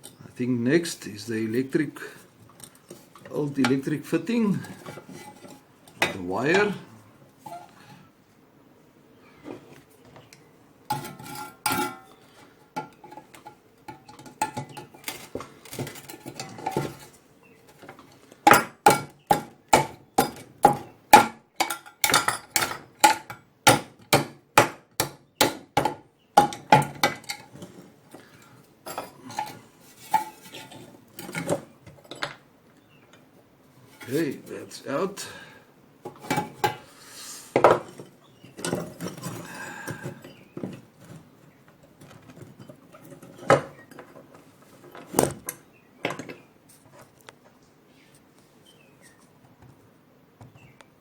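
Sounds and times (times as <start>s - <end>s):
metal parts clinking and scraping: 10.9s - 17.2s, 28.9s - 32.3s.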